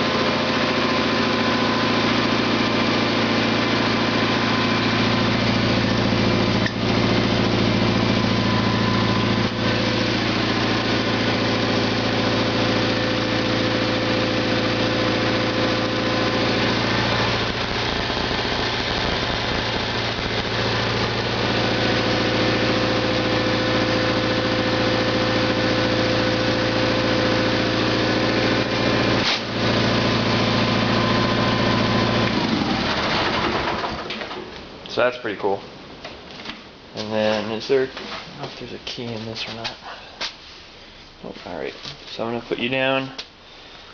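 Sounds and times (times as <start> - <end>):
garden tractor engine running: 0.0 - 34.6
engine knocks: 32.2 - 34.6.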